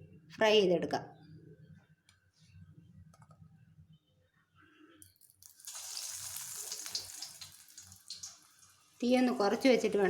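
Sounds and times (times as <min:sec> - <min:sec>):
oil sizzling in a frying pan: 0:05.4 - 0:10.0.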